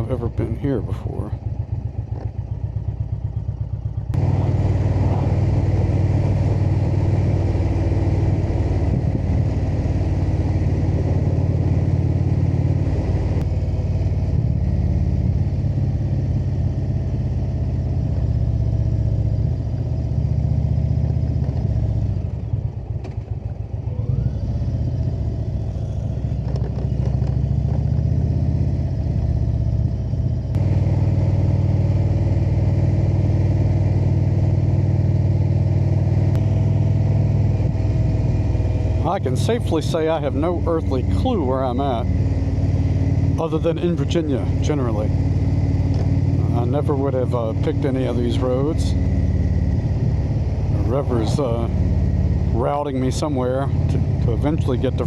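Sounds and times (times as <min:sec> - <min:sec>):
motorcycle engine: 0:00.0 - 0:55.0
wind noise: 0:04.2 - 0:09.7.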